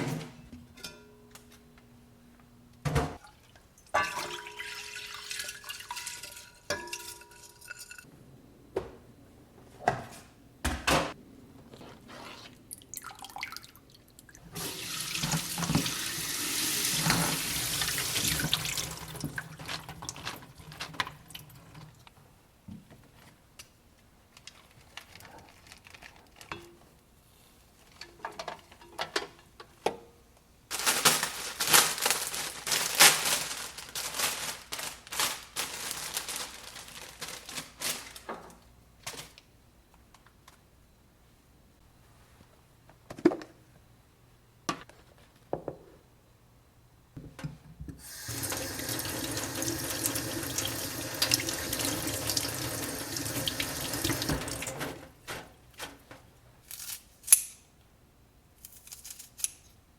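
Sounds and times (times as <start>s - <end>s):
dishes and utensils clinking: 0.6s - 1.3s, 6.0s - 8.1s
kitchen tap running: 14.5s - 20.3s, 48.0s - 55.0s.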